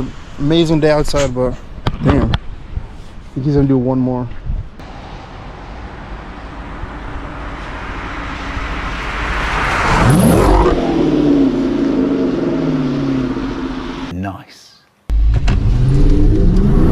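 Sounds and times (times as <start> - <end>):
car engine accelerating past: 4.8 - 14.1, 15.2 - 16.9.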